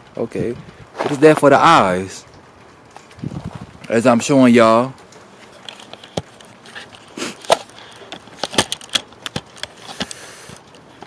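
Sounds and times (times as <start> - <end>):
footsteps crunching icy snow: 0.9 - 1.6.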